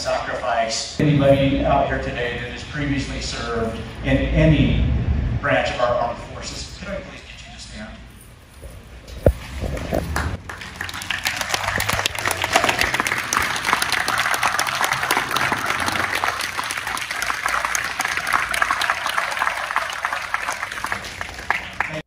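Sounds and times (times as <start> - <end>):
crowd applauding: 9.7 - 22.0.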